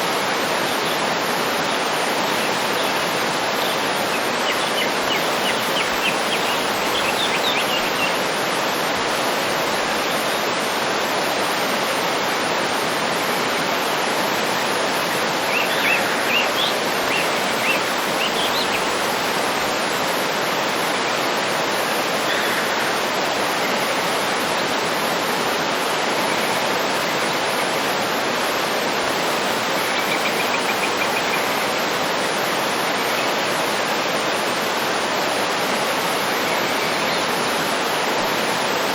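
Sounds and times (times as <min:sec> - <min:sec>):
waterfall rushing: 0:00.0 - 0:38.9
birds chirping: 0:03.6 - 0:08.2.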